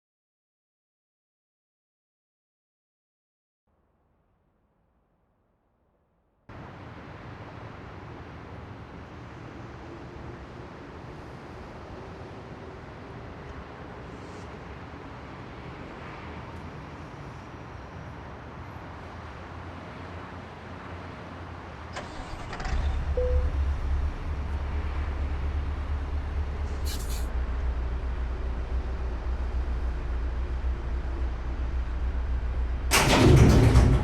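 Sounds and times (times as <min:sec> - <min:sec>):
truck diesel engine rumbling: 0:21.9 - 0:34.0
short air hiss: 0:26.7 - 0:27.3.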